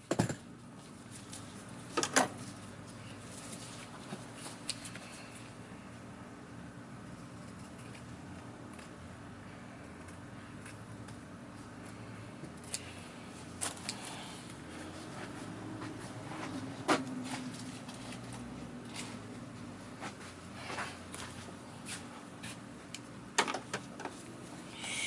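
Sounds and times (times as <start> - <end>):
vacuum parts clicking and knocking: 0.1 - 0.4, 23.3 - 24.2.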